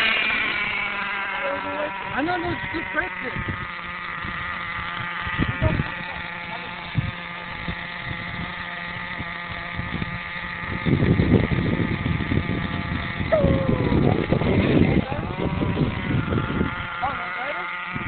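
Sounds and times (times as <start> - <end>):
loud rough noise: 0.0 - 18.0
toy truck motor high-pitched hum: 0.0 - 18.0.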